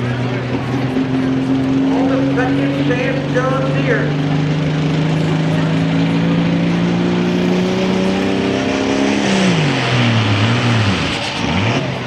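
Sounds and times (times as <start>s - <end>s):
tractor diesel engine revving: 7.0s - 12.0s.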